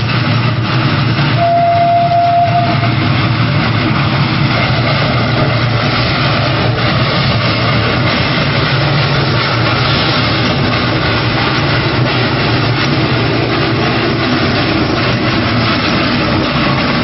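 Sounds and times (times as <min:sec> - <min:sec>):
steam locomotive rumbling: 0:00.0 - 0:17.0
steam whistle: 0:01.4 - 0:03.0.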